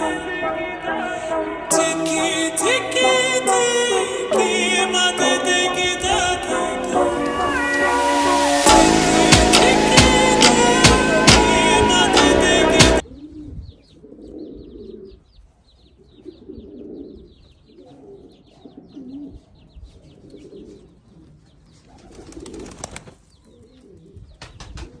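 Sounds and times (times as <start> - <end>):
pigeons cooing: 13.0 - 15.3, 16.1 - 25.0.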